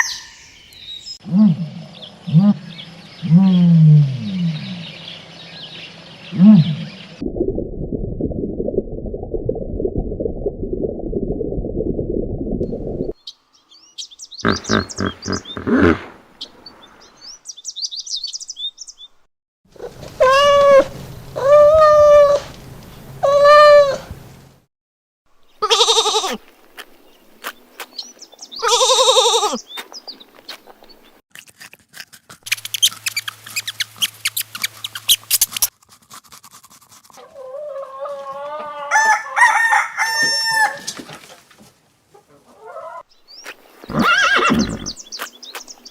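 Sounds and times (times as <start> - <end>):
chicken calls: 0.0 - 0.6, 14.4 - 16.6, 19.8 - 22.5, 23.2 - 24.1, 37.2 - 41.0, 42.1 - 45.0
rooster crowing: 38.1 - 41.0.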